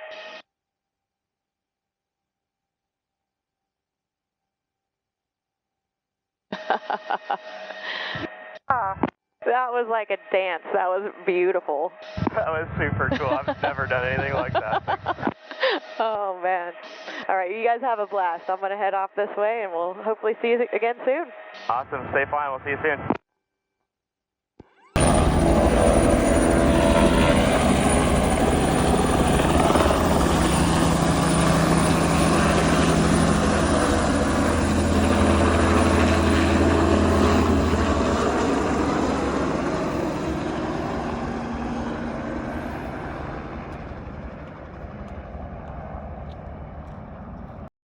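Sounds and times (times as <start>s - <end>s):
helicopter rotor and turbine noise: 12.0s - 16.1s, 25.0s - 47.7s.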